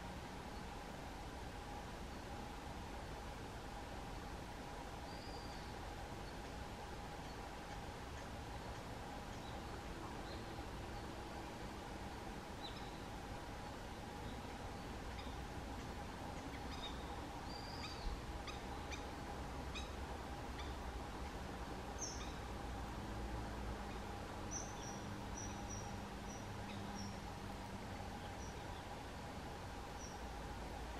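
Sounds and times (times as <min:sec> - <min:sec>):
low hum and hiss: 0:00.0 - 0:30.9
small birds chirping: 0:05.0 - 0:22.6, 0:23.8 - 0:29.1, 0:29.8 - 0:30.9.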